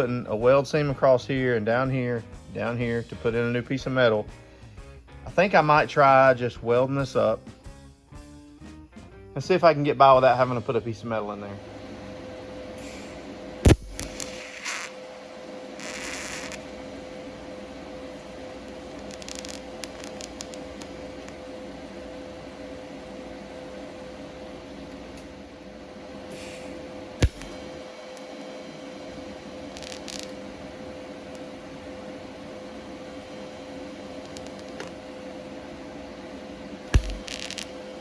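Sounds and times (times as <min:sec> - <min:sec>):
shop hum: 0:00.0 - 0:07.5, 0:09.4 - 0:38.0
welder hissing and crackling: 0:12.7 - 0:33.1, 0:33.8 - 0:35.0, 0:36.6 - 0:38.0
sharp click: 0:27.2 - 0:28.3, 0:37.0 - 0:37.7.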